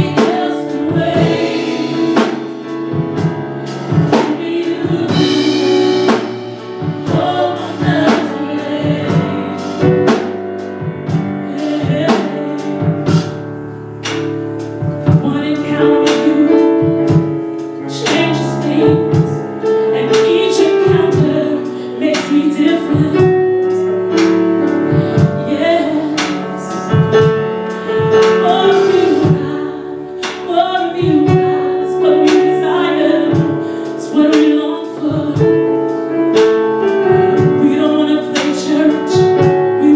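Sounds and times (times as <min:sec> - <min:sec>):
voices singing: 0:00.0 - 0:02.8, 0:04.0 - 0:09.7
drum kit beat: 0:00.0 - 0:39.9
keyboard chords: 0:00.0 - 0:39.9.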